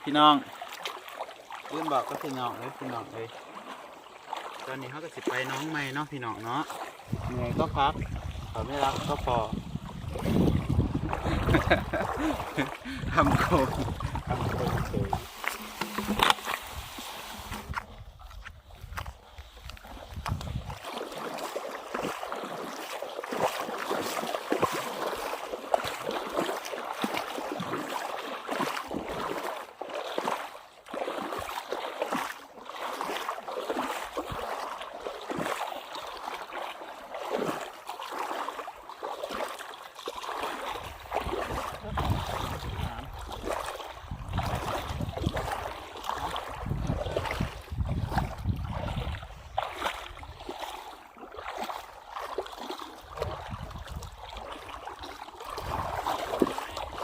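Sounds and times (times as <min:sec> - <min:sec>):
shallow water splashing: 0:00.0 - 0:57.0
wind buffeting microphone: 0:07.0 - 0:15.4, 0:16.0 - 0:20.8, 0:40.9 - 0:45.6, 0:46.2 - 0:50.4, 0:53.2 - 0:54.2, 0:55.6 - 0:56.1.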